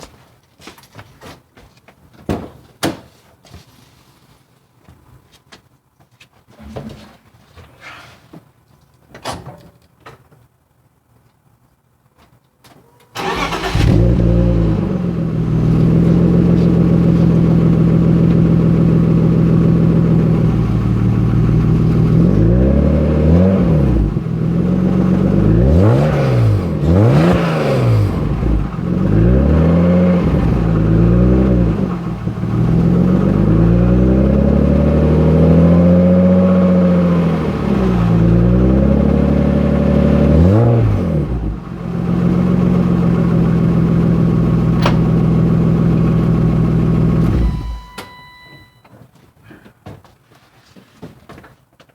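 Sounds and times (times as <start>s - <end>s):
car engine starting and revving: 13.2s - 48.0s.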